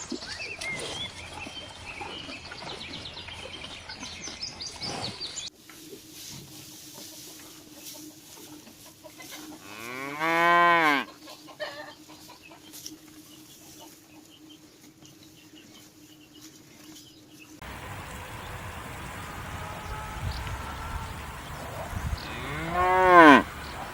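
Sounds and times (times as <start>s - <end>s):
cow mooing: 9.6s - 11.1s, 19.1s - 23.9s.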